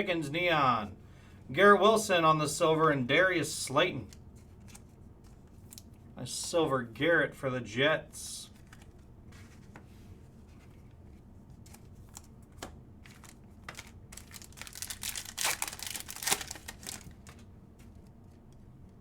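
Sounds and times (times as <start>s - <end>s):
foil card pack crinkling and tearing: 11.6s - 17.4s.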